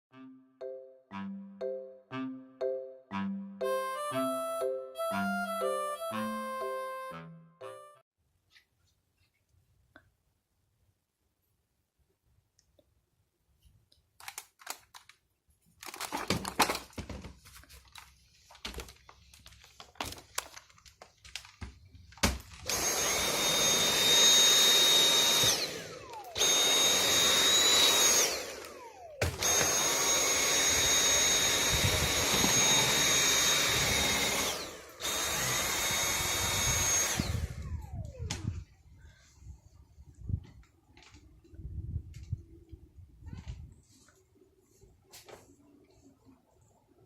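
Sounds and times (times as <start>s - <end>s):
vacuum cleaner whine: 22.6s - 38.6s.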